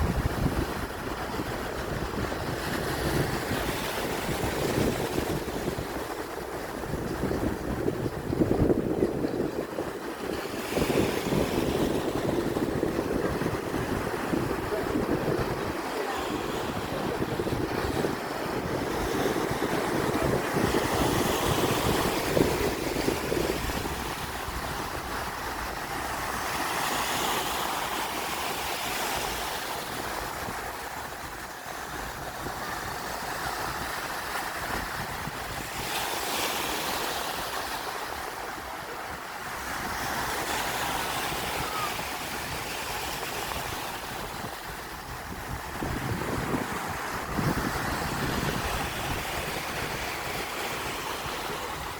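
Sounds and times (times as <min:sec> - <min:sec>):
sea waves washing ashore: 0:00.0 - 0:51.9
wind buffeting microphone: 0:00.0 - 0:51.9.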